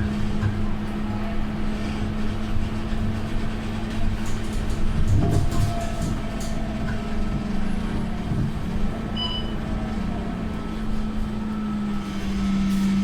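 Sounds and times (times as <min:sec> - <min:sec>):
bus engine droning: 0:00.0 - 0:13.0
high beep: 0:09.2 - 0:09.6.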